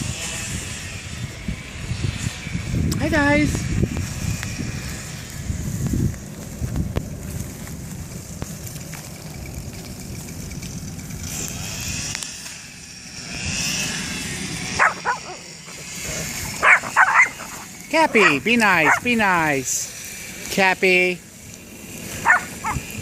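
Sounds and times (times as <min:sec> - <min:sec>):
low rumbling noise: 0:00.0 - 0:23.0
dog barking: 0:14.8 - 0:15.4, 0:16.6 - 0:17.6, 0:18.2 - 0:19.1, 0:22.2 - 0:22.8.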